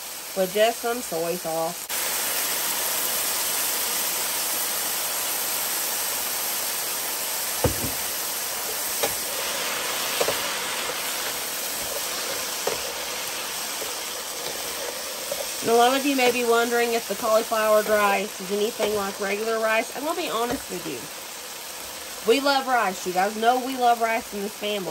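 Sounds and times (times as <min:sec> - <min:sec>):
food sizzling in a skillet: 0:00.0 - 0:24.9
wooden spatula knocking pan: 0:07.6 - 0:08.2.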